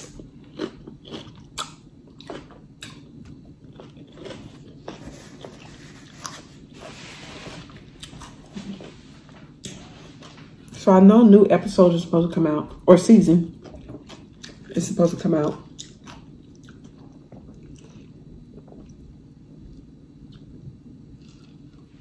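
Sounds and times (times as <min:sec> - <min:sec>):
chewing and mouth smacking: 0:00.0 - 0:06.4, 0:13.5 - 0:14.8, 0:15.7 - 0:19.1, 0:21.2 - 0:21.9.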